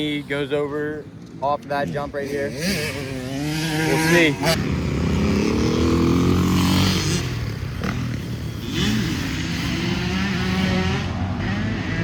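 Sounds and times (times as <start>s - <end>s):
dirt bike engine revving: 1.7s - 12.0s.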